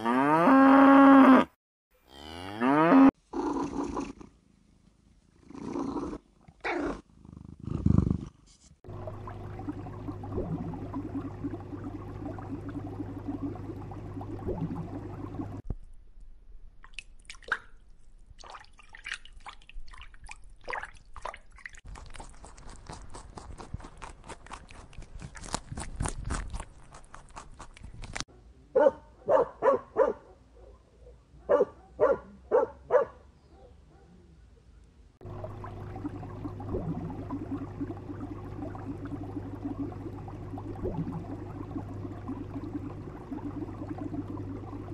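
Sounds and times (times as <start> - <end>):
steady low hum: 8.9 - 15.6, 35.2 - 44.9
gorilla chewing food: 21.9 - 28.3
dog barking: 28.8 - 34.3.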